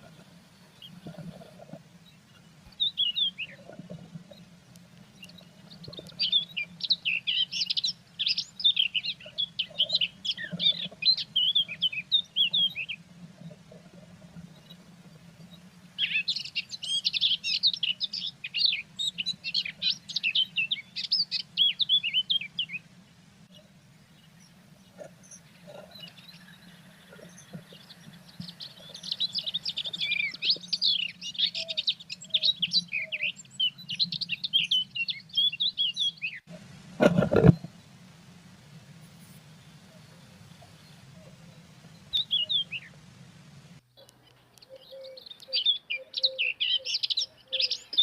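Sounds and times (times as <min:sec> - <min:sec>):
faint low hum: 0:00.0 - 0:45.6
blue tits chirping: 0:23.6 - 0:36.5, 0:39.1 - 0:43.4, 0:44.0 - 0:48.0.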